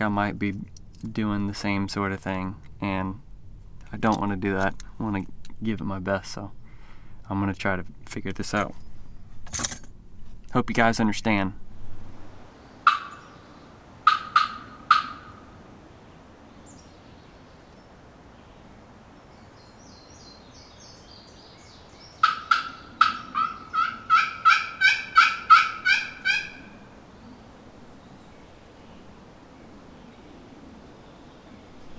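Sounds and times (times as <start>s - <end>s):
turkey yelping: 12.8s - 13.3s, 14.0s - 15.5s, 22.2s - 26.8s.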